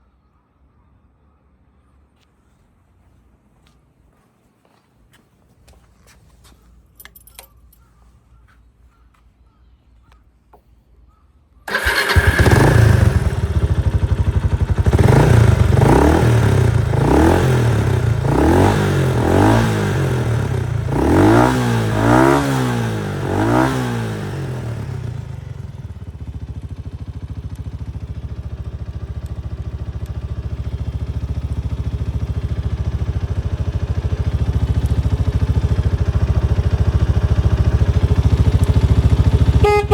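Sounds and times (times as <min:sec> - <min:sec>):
engine idling: 0:11.7 - 0:21.0, 0:24.3 - 0:39.9
engine revving in blips: 0:11.7 - 0:26.0
motorcycle engine starting: 0:11.7 - 0:39.9.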